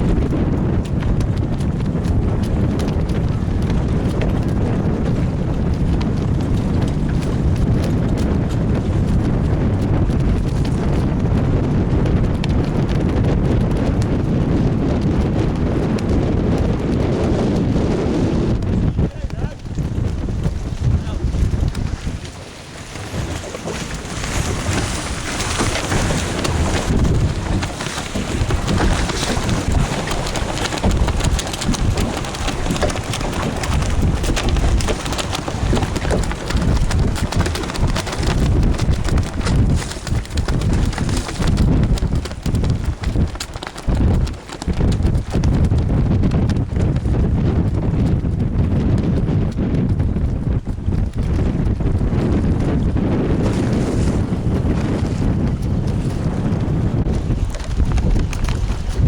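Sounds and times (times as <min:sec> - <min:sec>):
wind buffeting microphone: 0:00.0 - 0:59.0
rushing splashing water: 0:18.5 - 0:46.7, 0:51.1 - 0:59.0.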